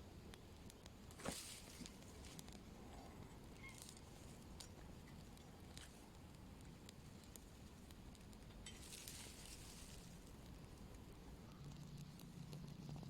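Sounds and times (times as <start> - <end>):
faint clicks: 0.3 - 1.2
short rustle or crunch: 1.1 - 4.7, 8.7 - 10.4.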